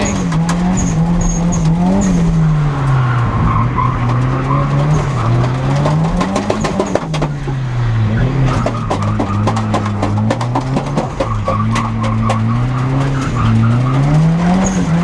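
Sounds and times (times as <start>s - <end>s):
car engine revving: 0.0s - 15.0s
tyres skidding and squealing: 0.0s - 15.0s.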